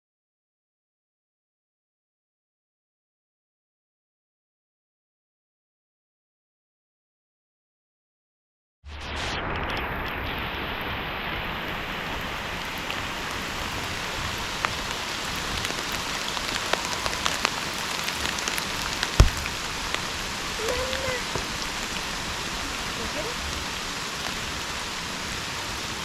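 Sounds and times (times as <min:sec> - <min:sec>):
steady rain falling: 0:09.7 - 0:26.0
raindrops ticking: 0:12.5 - 0:24.4
sharp tap: 0:19.2 - 0:19.7.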